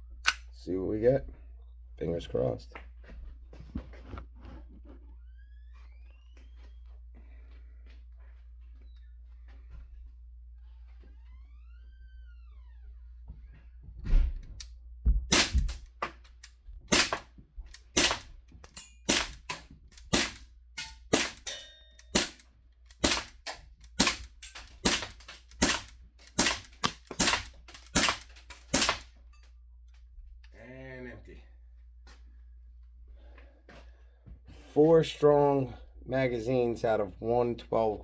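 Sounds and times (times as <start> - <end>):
airsoft pistol shots popping: 15.3 - 15.8, 16.9 - 18.4, 19.1 - 22.4, 23.0 - 29.1.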